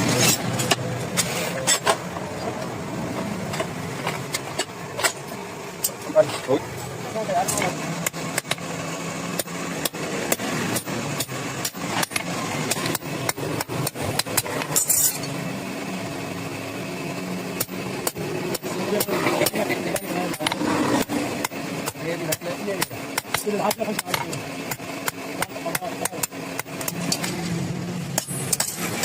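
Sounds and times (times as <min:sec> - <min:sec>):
steady low hum: 0:00.0 - 0:29.0
hammer striking iron on anvil: 0:17.6 - 0:27.4, 0:28.1 - 0:29.0.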